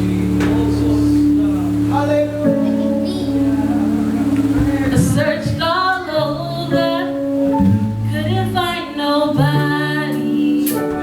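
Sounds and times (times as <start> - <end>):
sustained keyboard notes: 0.0 - 11.0
woman singing gospel: 4.9 - 11.0.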